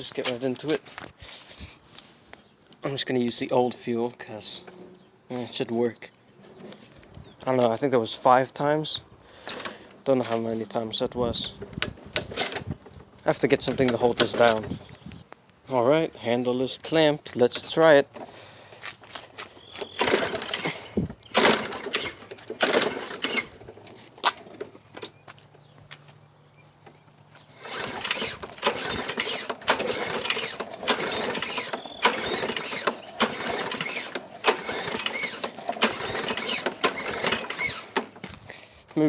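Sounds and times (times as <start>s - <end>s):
lawn mower pull cord rattling: 9.4s - 10.6s, 11.4s - 14.8s, 19.4s - 25.2s, 27.5s - 38.3s
engine turning over: 13.6s - 14.7s, 19.7s - 25.2s, 27.4s - 38.3s.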